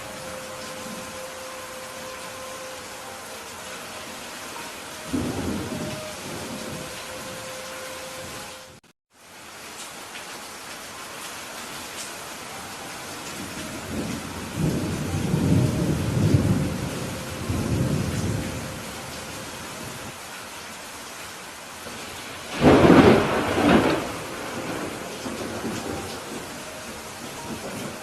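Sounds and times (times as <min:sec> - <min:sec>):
steady rain: 0:00.0 - 0:28.0
thunder rumbling: 0:05.0 - 0:08.8, 0:13.4 - 0:20.1, 0:21.9 - 0:28.0
thunderclap: 0:22.5 - 0:26.5.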